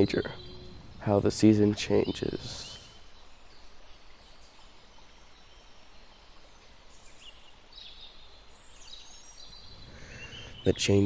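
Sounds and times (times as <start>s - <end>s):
high bird chirps: 0.0s - 3.3s, 9.3s - 11.0s
steady low hiss: 0.0s - 11.0s.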